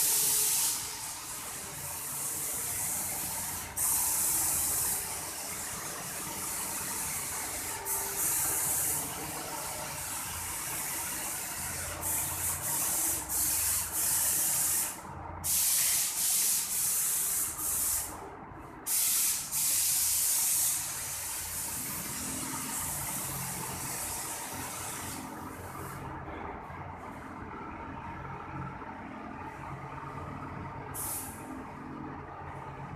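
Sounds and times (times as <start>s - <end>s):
paint sprayer hissing: 0.0s - 18.2s, 18.9s - 26.0s, 31.0s - 31.4s.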